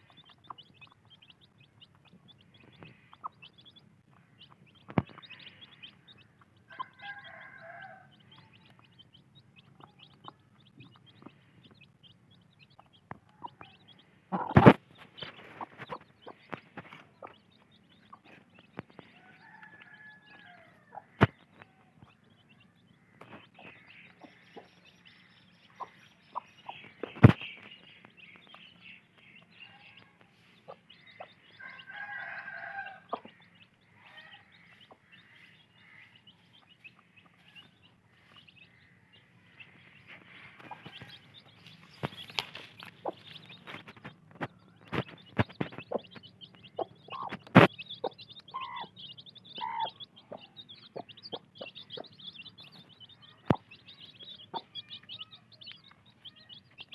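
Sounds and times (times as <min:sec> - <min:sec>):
hens clucking: 0:00.0 - 0:22.2, 0:39.3 - 0:55.2
chicks peeping: 0:00.0 - 0:56.9.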